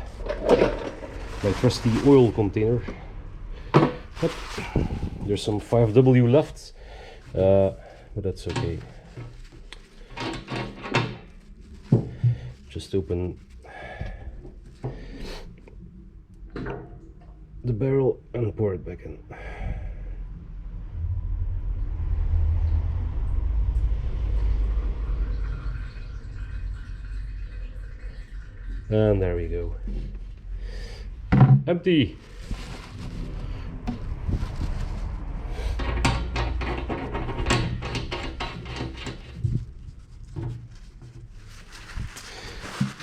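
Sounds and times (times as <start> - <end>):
objects knocking and clattering: 0.0 - 2.3, 3.6 - 5.0, 31.3 - 31.7, 35.6 - 39.8.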